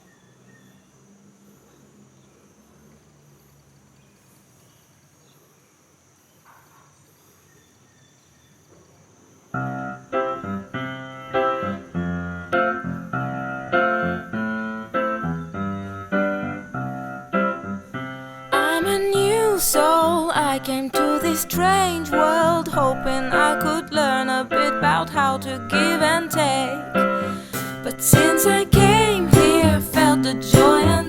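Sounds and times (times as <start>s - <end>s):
faint background noise: 0.0s - 31.0s
piano melody: 9.6s - 31.0s.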